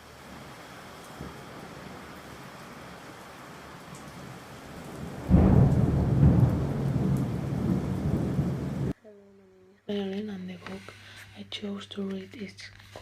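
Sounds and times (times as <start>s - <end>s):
steady rain: 0.0s - 9.0s
thunder rumbling: 0.0s - 9.0s.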